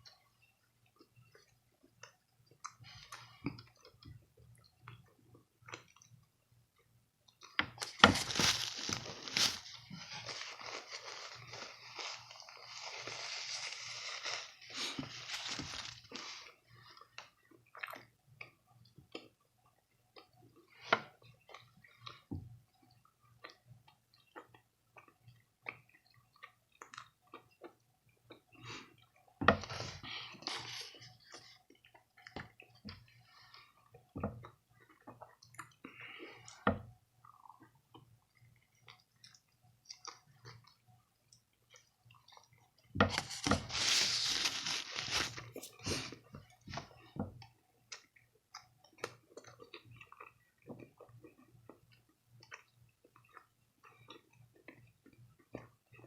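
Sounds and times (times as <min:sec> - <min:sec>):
person chewing food: 0:00.0 - 0:56.0
rustling noise: 0:07.8 - 0:16.6, 0:43.0 - 0:46.2.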